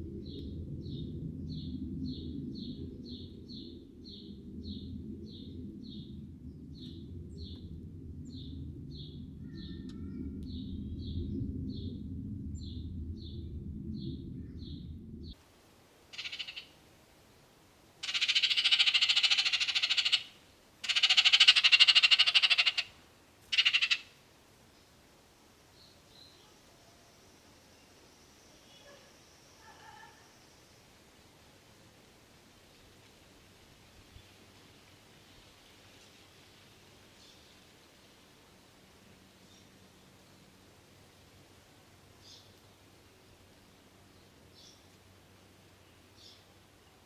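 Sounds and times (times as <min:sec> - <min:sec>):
low rumble: 0:00.0 - 0:16.0
bird high chirps: 0:16.1 - 0:16.7, 0:18.0 - 0:22.9, 0:23.5 - 0:24.1.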